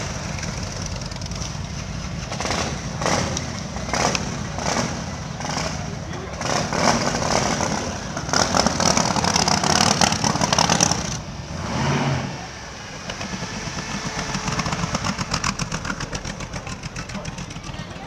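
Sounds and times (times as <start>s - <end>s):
motorcycle engines revving: 0.0s - 18.0s
motorcycle engine pulsing rumble: 12.4s - 18.0s.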